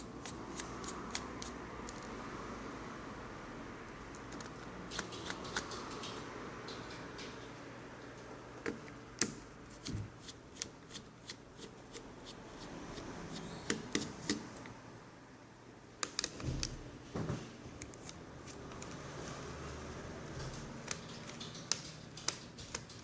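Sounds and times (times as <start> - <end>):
plastic parts clicking and tapping: 20.4 - 23.0.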